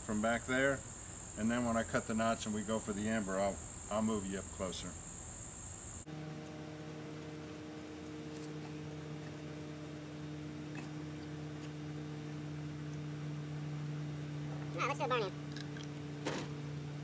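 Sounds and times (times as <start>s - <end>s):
high insect trill: 3.4s - 17.0s
steady low hum: 6.0s - 17.0s.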